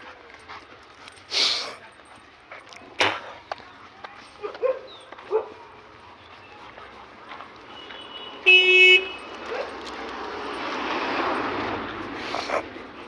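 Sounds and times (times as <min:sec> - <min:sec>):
dog snorting: 0:11.9 - 0:13.0.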